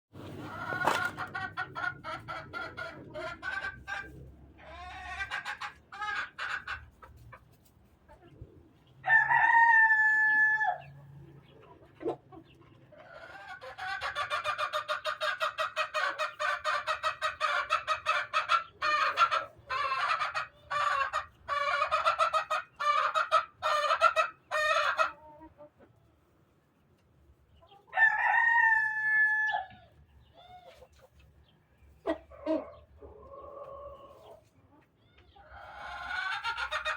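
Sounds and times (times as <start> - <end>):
chickens clucking: 0.2 - 36.9
rooster crowing: 9.0 - 10.8, 28.0 - 29.7.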